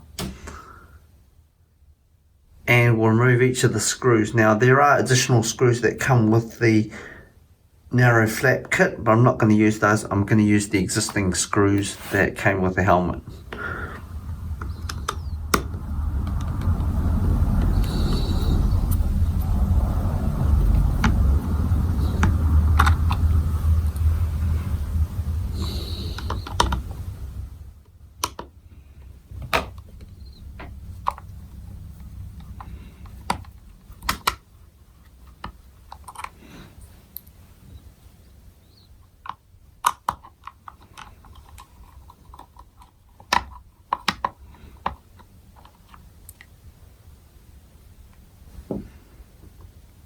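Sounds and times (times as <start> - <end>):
screwdriver clicks and taps: 28.2 - 28.5.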